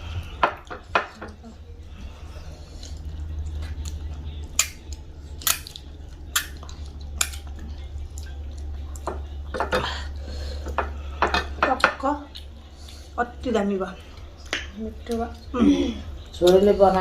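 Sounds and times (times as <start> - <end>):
steady low hum: 0.0 - 17.0
plates and utensils clinking: 9.0 - 12.2.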